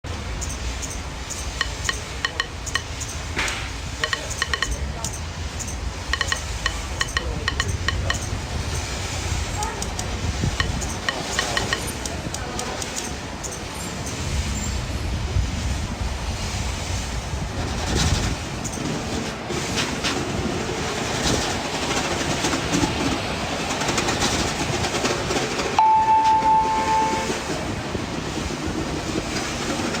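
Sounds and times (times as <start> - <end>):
city low rumble: 0.0 - 30.0
train-like clattering and rattling: 0.1 - 30.0
high metallic clinks: 0.4 - 3.3
light ticks: 9.8 - 13.6
clear high tone: 25.8 - 27.7.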